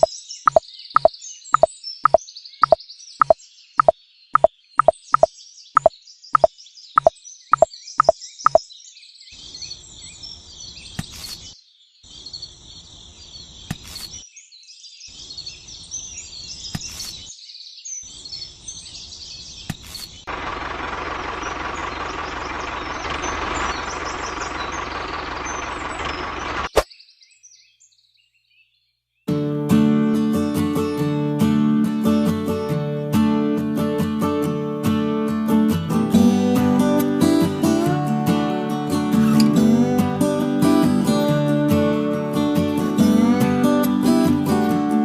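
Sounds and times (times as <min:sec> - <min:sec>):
birds chirping: 0:00.0 - 0:11.6, 0:21.2 - 0:29.1.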